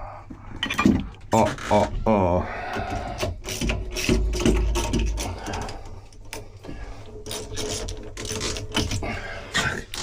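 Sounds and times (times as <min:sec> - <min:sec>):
clicks and knocks on pipe fittings: 0:00.4 - 0:01.9, 0:02.7 - 0:09.1.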